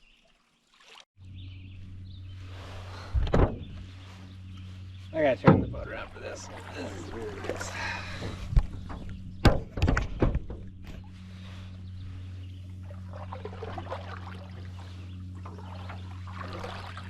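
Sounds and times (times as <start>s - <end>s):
paddling with water trickling: 0.0s - 17.0s
steady low hum: 1.2s - 17.0s
canoe paddle knocking on hull: 5.4s - 11.0s.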